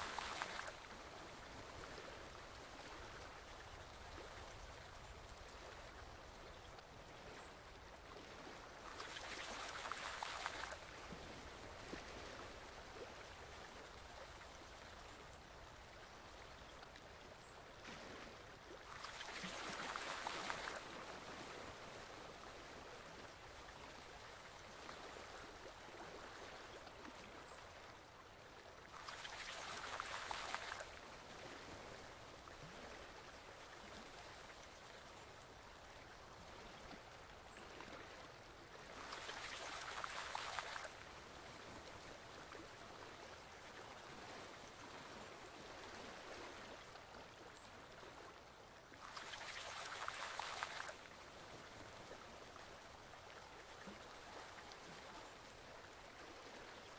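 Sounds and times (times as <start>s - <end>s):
rush of water: 0.0s - 56.9s
stream water flowing: 0.0s - 56.9s.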